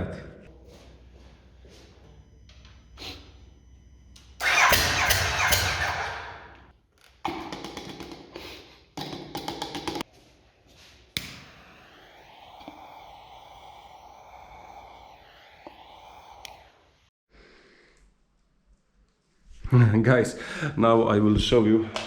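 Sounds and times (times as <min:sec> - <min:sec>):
motorcycle starter cranking: 0:04.4 - 0:06.4.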